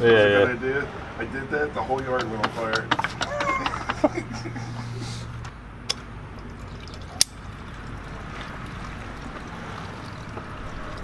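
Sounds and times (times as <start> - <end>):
fuel pouring into container: 6.3 - 11.0.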